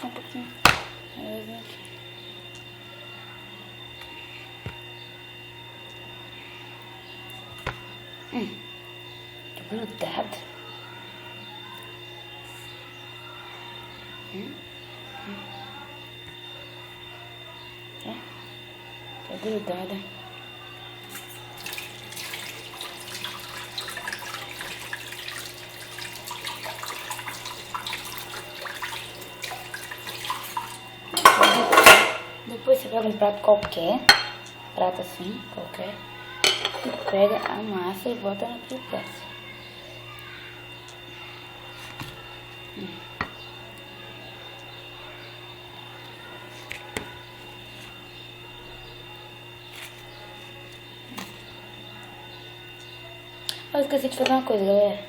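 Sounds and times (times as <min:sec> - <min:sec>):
steady background hum: 0:00.0 - 0:55.0
hands kneading wet dough: 0:21.0 - 0:31.1, 0:45.6 - 0:48.2, 0:49.0 - 0:51.9.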